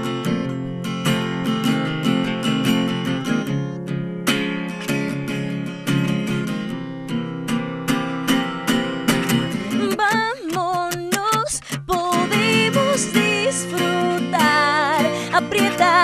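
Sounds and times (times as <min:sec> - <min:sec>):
acoustic guitar strumming chords: 0:00.0 - 0:16.0
woman singing: 0:09.6 - 0:16.0.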